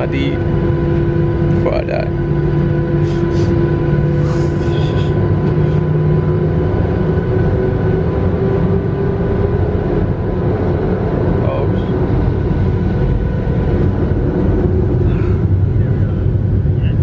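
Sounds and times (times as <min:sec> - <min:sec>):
jet engines droning in cabin: 0:00.0 - 0:17.0.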